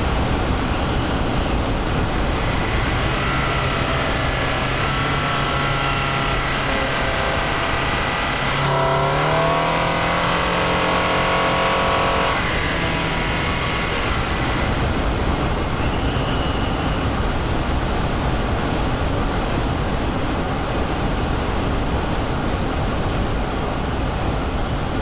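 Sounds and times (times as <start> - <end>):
car engine accelerating: 0.0 - 16.0
road and tyre noise: 0.0 - 25.0.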